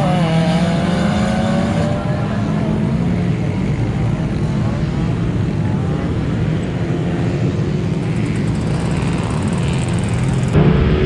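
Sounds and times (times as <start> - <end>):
engine revs rising and falling: 0.0 - 3.6
car engines running: 0.0 - 11.0.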